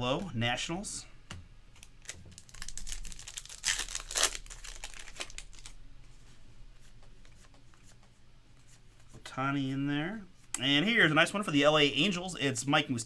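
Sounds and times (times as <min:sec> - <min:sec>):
plastic wrapper crinkling and tearing: 0:01.8 - 0:05.8.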